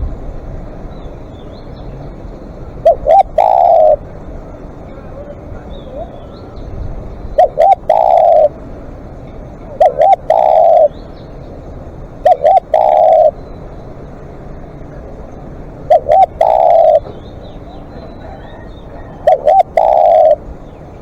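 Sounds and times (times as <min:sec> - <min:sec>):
dove cooing: 0:02.8 - 0:04.1, 0:07.4 - 0:08.6, 0:09.7 - 0:11.0, 0:12.2 - 0:13.4, 0:15.9 - 0:20.6.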